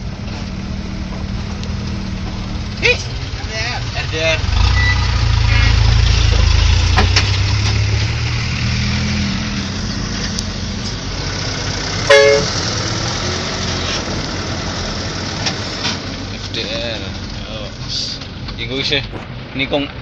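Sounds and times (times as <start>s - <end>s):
truck engine running: 0.0s - 20.0s
horn toot: 4.5s - 6.2s, 12.1s - 12.6s.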